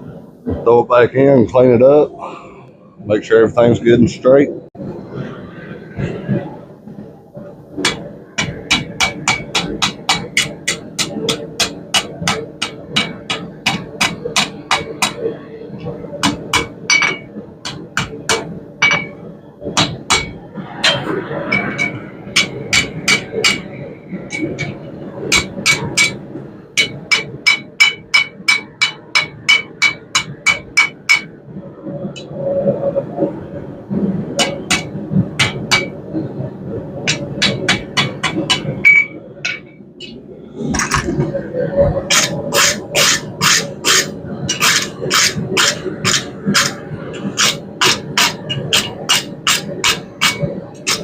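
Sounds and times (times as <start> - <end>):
hammer striking steel on anvil: 7.8 - 15.2, 16.2 - 19.2, 19.8 - 23.7, 24.3 - 26.2, 26.8 - 31.3, 34.4 - 36.0, 37.1 - 40.2, 42.1 - 51.0
hammer ringing on anvil: 26.8 - 31.3, 47.4 - 51.0.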